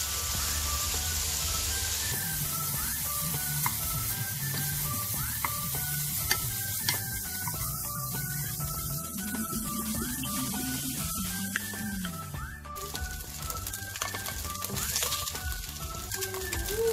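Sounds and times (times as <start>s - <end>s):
meat sizzling in oil: 0.0s - 16.9s.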